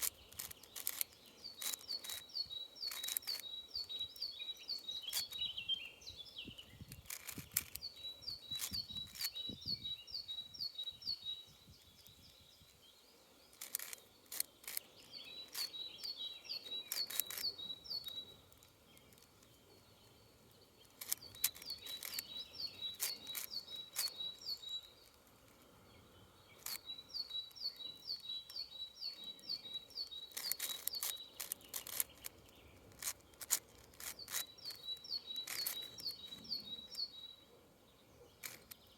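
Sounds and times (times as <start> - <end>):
puzzle cube clicking while turned: 0.0 - 4.0, 5.0 - 5.5, 6.8 - 9.5, 13.4 - 19.6, 20.8 - 25.6, 26.6 - 28.6, 29.3 - 36.6, 38.4 - 38.9
songbird singing: 0.0 - 38.9.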